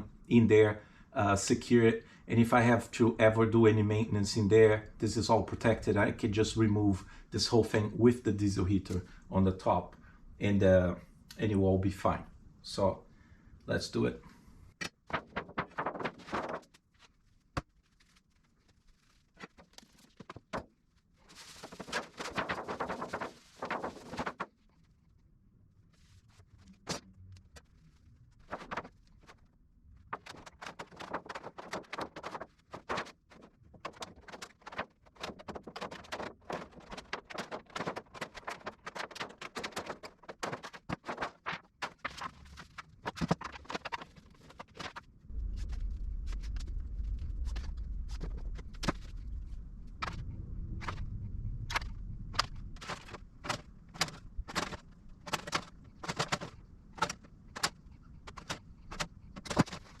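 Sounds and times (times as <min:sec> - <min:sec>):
steady low rumble: 0:45.1 - 0:56.0.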